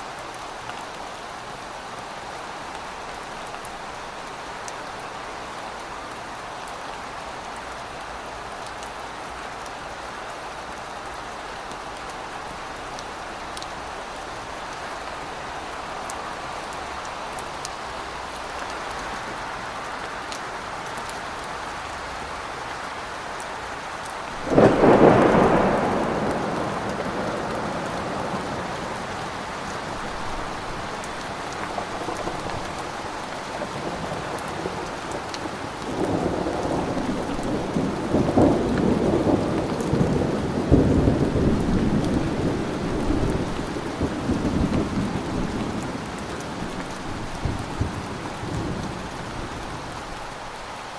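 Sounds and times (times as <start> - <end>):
steady rain: 0.0 - 50.9
loud thunderclap: 24.4 - 28.6
rolling thunder: 24.4 - 30.9.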